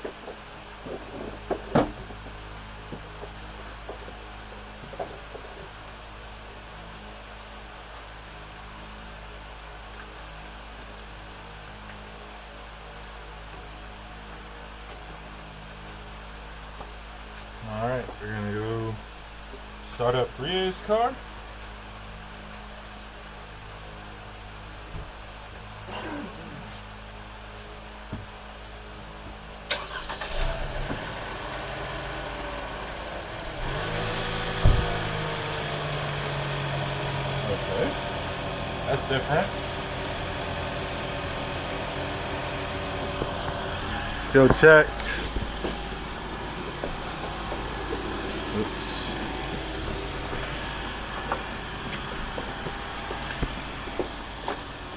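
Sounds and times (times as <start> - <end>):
thump: 1.2 - 2.2, 34.5 - 35.2
car engine starting and idling: 29.7 - 54.9
low hum: 40.0 - 54.9.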